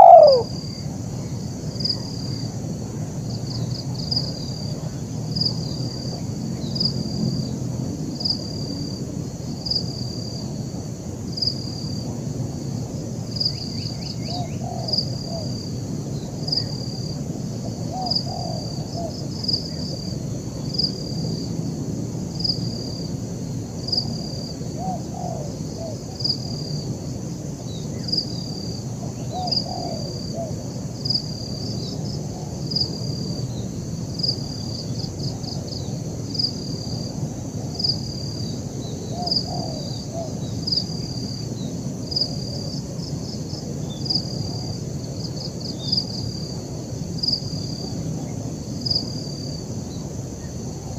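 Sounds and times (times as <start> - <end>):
dove cooing: 0.0 - 0.6, 14.3 - 15.5, 17.8 - 19.2, 24.8 - 26.0, 29.2 - 30.6, 39.1 - 40.3
high insect-like hiss: 0.0 - 50.9.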